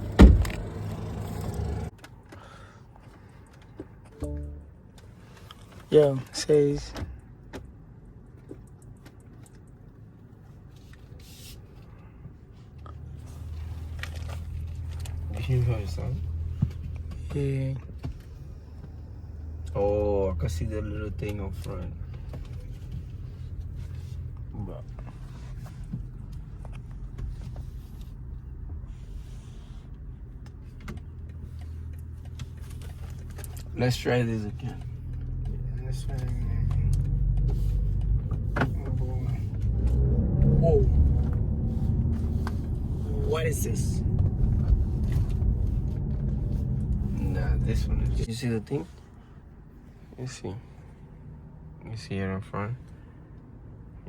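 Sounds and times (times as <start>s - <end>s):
car cabin rumble: 0.0s - 1.9s, 13.6s - 48.3s.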